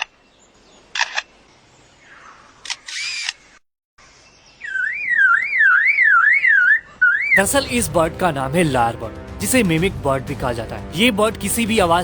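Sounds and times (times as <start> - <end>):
bird mimicking shutter clicks: 0.9 - 1.3, 2.6 - 3.6
bird mimicking motor whirring: 2.7 - 3.6
bird mimicking alarm tone: 4.6 - 7.4.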